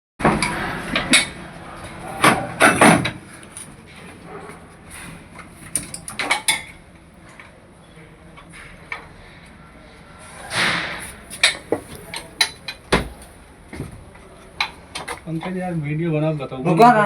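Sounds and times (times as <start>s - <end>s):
metal tools clanking and knocking: 0.2s - 6.8s, 10.5s - 14.0s, 14.6s - 15.6s.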